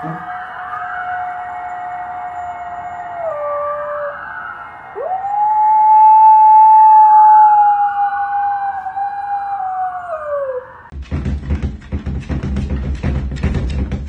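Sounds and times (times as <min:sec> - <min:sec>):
dog howling: 0:00.0 - 0:10.9
faint siren wailing: 0:00.0 - 0:10.9.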